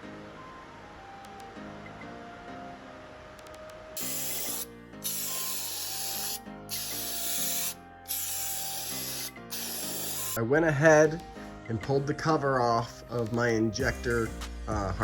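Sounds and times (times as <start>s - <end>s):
quiet background music: 0.0s - 15.0s
spray hissing: 4.0s - 10.4s.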